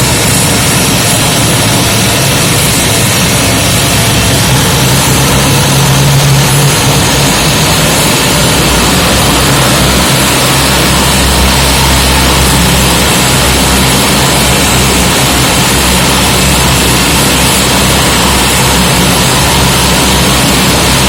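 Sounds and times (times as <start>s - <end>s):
turboprop engines roaring: 0.0s - 21.0s.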